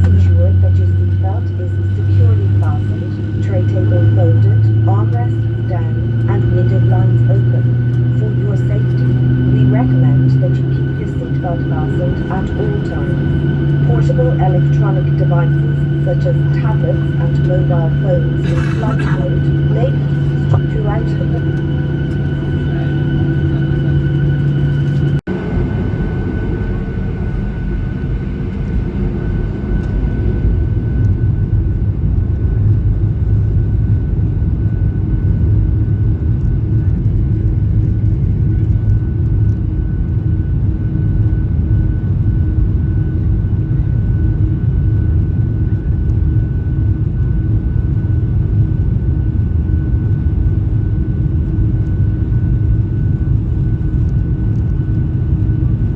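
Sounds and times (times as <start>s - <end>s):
heavy engine rumble: 0.0s - 25.2s
jet cabin hum with whine: 0.0s - 55.9s.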